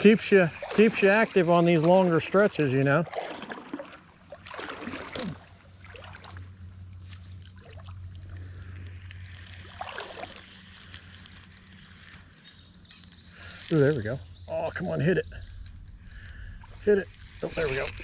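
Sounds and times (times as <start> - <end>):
creek water flowing: 0.0 - 12.4
steady low hum: 0.0 - 18.0.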